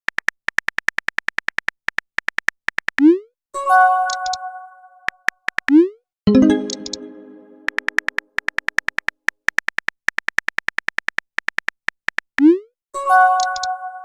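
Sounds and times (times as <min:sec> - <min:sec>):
keyboard typing clicks: 0:04.1 - 0:04.4, 0:05.0 - 0:12.3, 0:13.4 - 0:13.7
chime-like chord: 0:06.3 - 0:07.7
electronic chime: 0:06.3 - 0:07.8.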